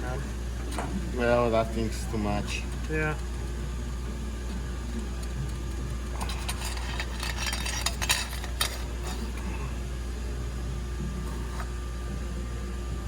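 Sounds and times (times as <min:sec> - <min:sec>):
steady low hum: 0:00.0 - 0:13.0
metallic clinking and crackling: 0:04.9 - 0:09.5.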